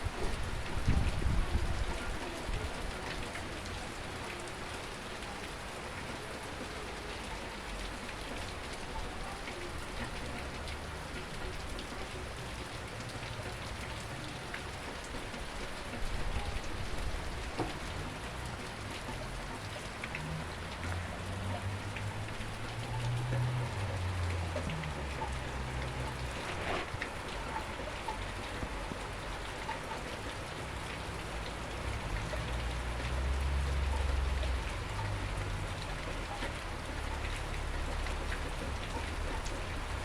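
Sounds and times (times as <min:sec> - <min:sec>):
steady rain falling: 0:00.0 - 0:40.0.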